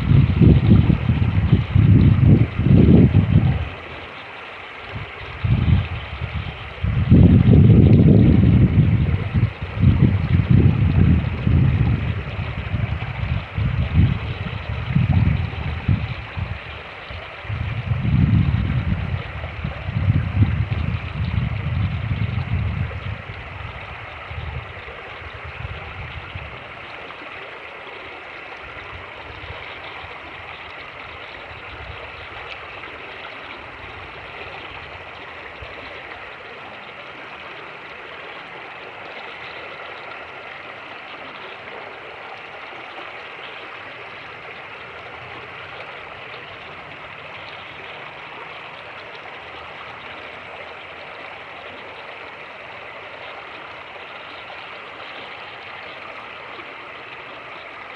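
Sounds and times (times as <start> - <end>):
wind buffeting microphone: 0.0 - 4.1, 4.8 - 26.9, 28.6 - 36.3
creek water rushing: 0.0 - 57.9.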